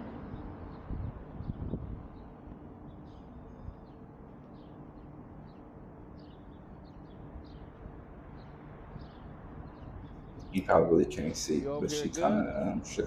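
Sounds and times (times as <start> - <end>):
small birds chirping: 0.1 - 13.0.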